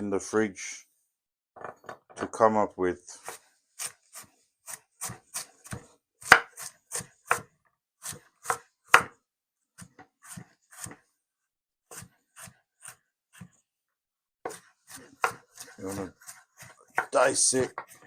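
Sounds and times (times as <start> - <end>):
knife chopping vegetables on board: 3.2 - 9.2, 9.8 - 11.0, 11.9 - 13.6, 14.5 - 18.0.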